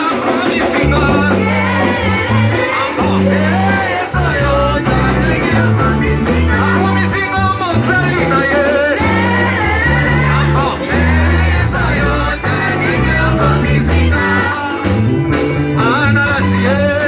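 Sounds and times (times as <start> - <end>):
amplified band: 0.0 - 17.0
people singing: 0.0 - 17.0.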